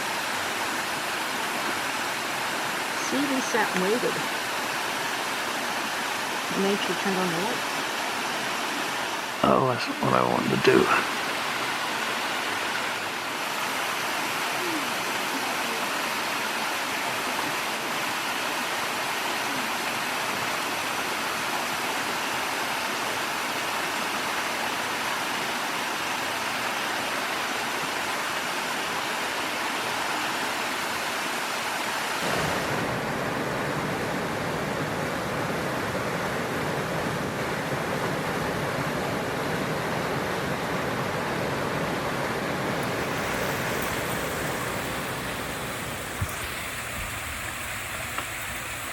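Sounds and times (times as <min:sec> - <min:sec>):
waterfall roaring: 0:00.0 - 0:48.9.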